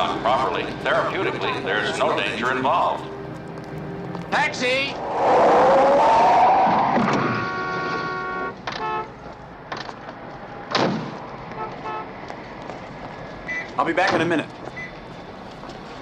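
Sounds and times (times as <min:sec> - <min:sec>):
car tyres screeching: 0:04.4 - 0:08.7
car horn: 0:07.1 - 0:09.3, 0:11.6 - 0:12.1.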